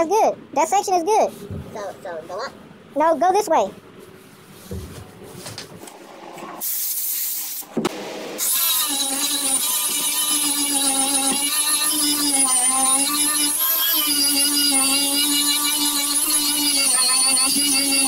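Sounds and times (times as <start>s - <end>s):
power grinder whining: 8.4s - 18.0s.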